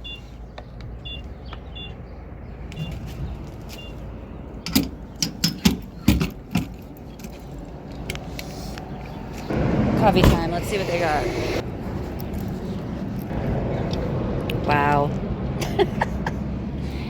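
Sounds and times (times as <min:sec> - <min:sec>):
vehicle warning chime beeping: 0:00.0 - 0:00.4, 0:01.0 - 0:02.0, 0:02.7 - 0:04.1
sharp clicks and clunks: 0:04.6 - 0:08.5.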